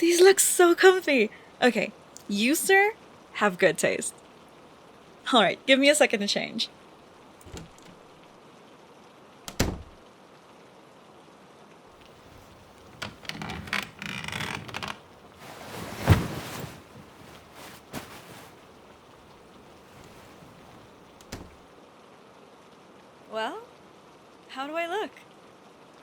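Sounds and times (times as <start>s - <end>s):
cloth rustling: 7.4s - 8.0s, 12.0s - 21.6s
soft thumps: 12.0s - 21.6s.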